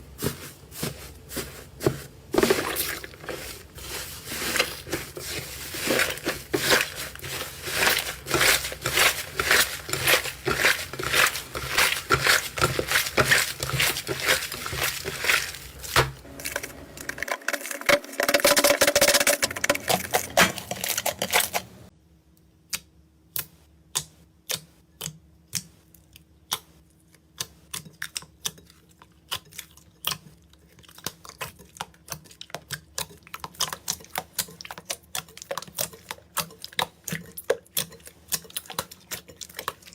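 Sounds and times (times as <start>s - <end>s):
slime tearing: 2.4s - 16.6s
slime crackling and popping: 2.4s - 21.8s.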